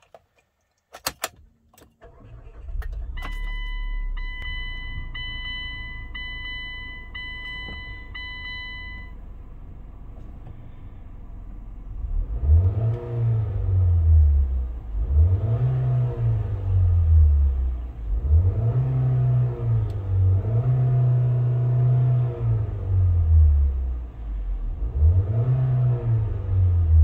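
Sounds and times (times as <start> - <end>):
car engine starting and idling: 0.1 - 27.0
dashboard warning chime: 3.1 - 9.2
car engine revving: 10.4 - 27.0.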